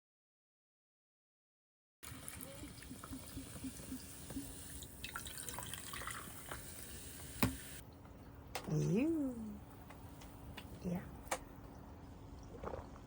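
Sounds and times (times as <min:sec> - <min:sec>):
liquid trickling and dripping: 0:02.0 - 0:08.5.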